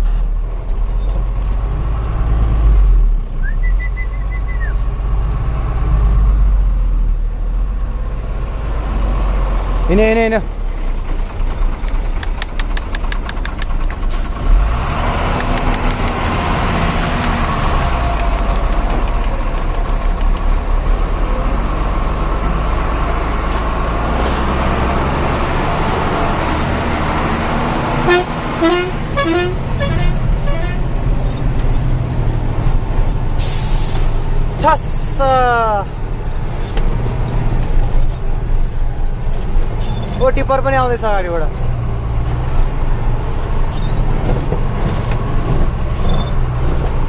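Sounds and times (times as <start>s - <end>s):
truck engine running: 0.0s - 47.0s
short horn toots: 28.0s - 30.8s.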